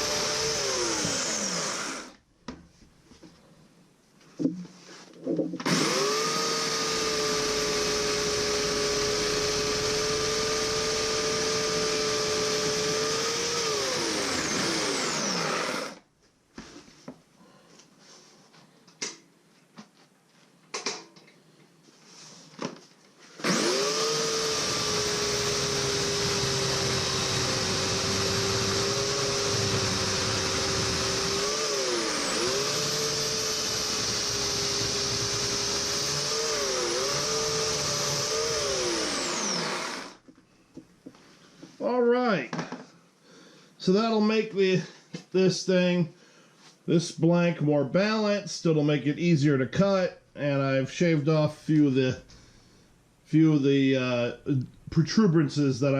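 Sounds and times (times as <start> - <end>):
electric chainsaw whining: 0.0 - 2.2, 5.6 - 16.0, 23.4 - 40.2.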